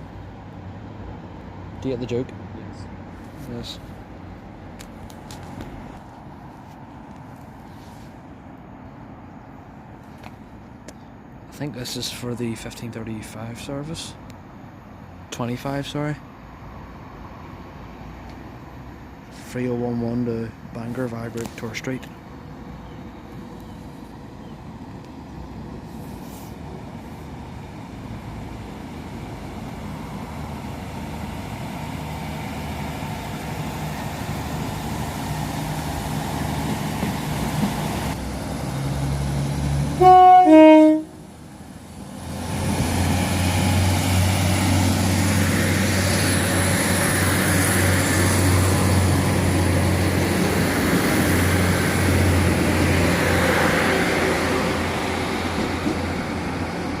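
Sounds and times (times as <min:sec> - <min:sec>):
diesel train approaching: 0:00.0 - 0:57.0
low engine hum: 0:20.6 - 0:57.0
two-tone train horn blast: 0:40.0 - 0:41.2.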